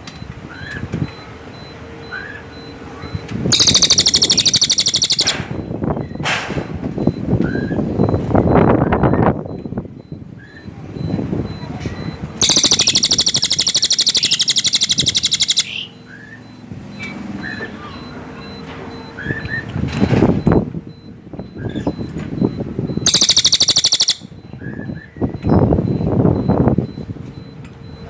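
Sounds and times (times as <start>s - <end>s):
bird short chirps: 3.5s - 5.4s, 12.4s - 16.4s, 23.1s - 24.3s
bird high trill: 3.5s - 5.5s, 12.4s - 16.4s, 23.0s - 24.4s.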